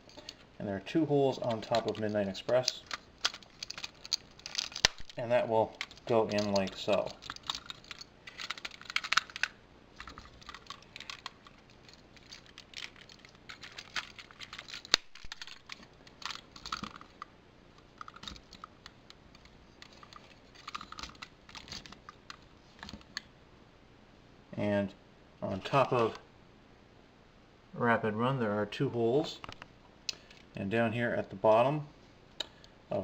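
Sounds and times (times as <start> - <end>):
plastic parts clicking and rattling: 1.3 - 23.2.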